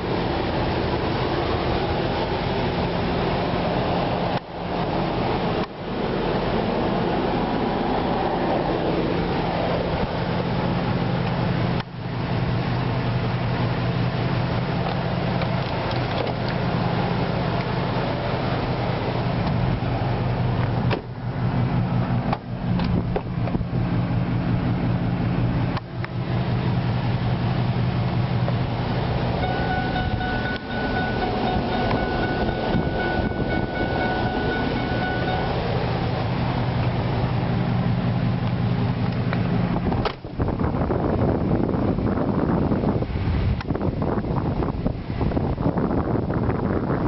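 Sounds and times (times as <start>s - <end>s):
vehicle engine humming: 0.0s - 47.0s
falling whine: 14.8s - 39.7s.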